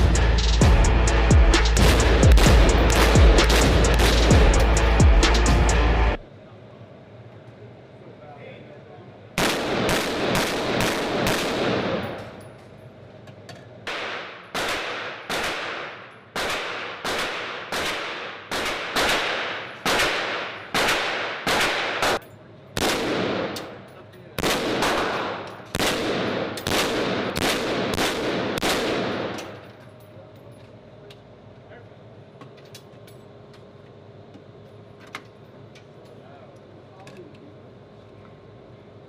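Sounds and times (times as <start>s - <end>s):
gunshots with echoing tail: 1.7s - 5.3s, 9.4s - 12.4s, 13.9s - 22.2s, 22.8s - 23.7s, 24.4s - 29.5s.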